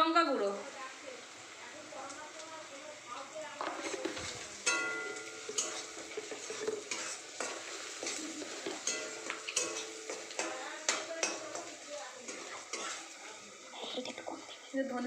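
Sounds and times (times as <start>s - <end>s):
onions sizzling in oil: 0.0s - 15.0s
spatula scraping a pan: 3.6s - 13.4s.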